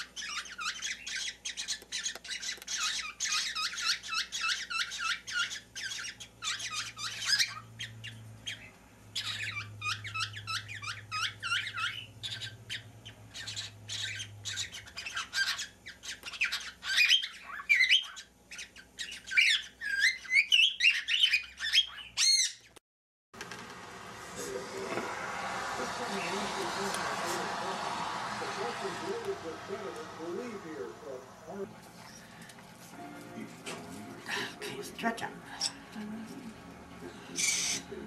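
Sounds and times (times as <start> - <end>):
baby birds cheeping: 0.0 - 22.8, 37.1 - 38.0.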